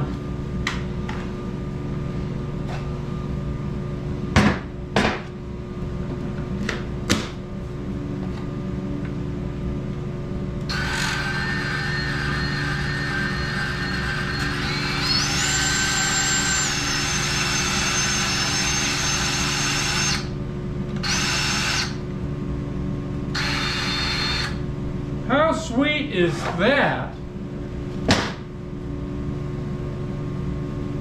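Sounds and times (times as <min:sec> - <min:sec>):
band saw running: 0:10.7 - 0:20.3, 0:21.0 - 0:22.0, 0:23.3 - 0:24.6
low steady hum: 0:20.3 - 0:31.0.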